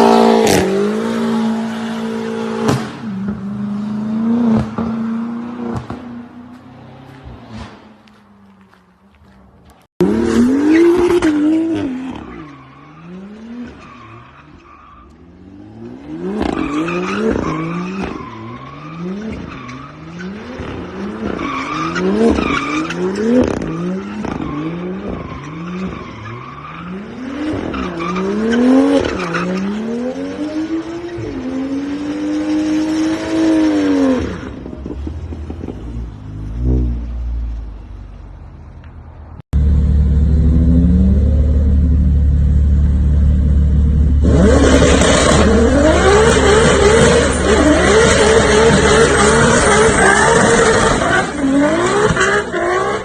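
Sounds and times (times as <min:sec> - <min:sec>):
car engine revving: 0:10.0 - 0:12.4, 0:39.5 - 0:53.0.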